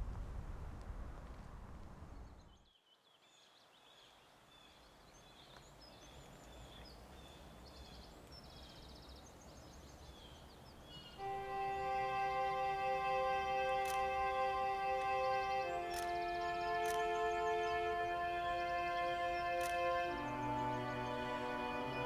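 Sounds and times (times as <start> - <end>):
low rumble: 0.0 - 2.5
woodland birds chirping and singing: 2.2 - 22.0.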